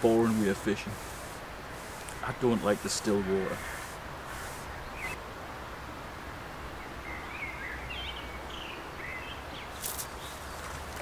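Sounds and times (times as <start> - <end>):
outdoor background hiss: 0.0 - 11.0
small bird chirping: 1.8 - 5.2.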